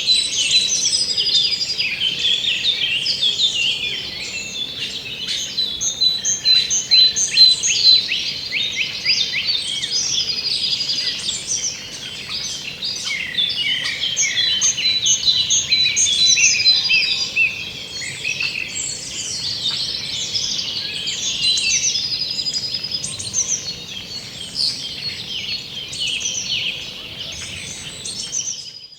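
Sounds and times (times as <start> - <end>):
chorus of songbirds singing: 0.0 - 28.9.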